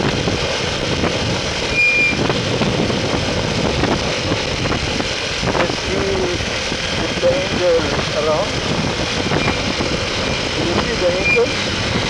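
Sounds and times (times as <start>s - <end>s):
wind and road noise: 0.0s - 12.0s
short high beep: 1.7s - 2.2s.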